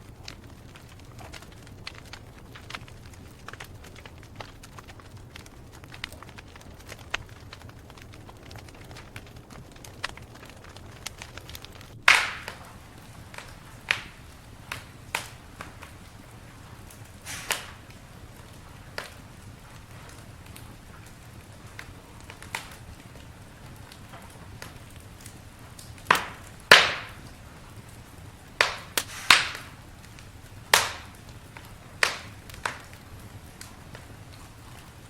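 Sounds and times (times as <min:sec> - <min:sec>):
campfire crackling: 0:00.0 - 0:35.0.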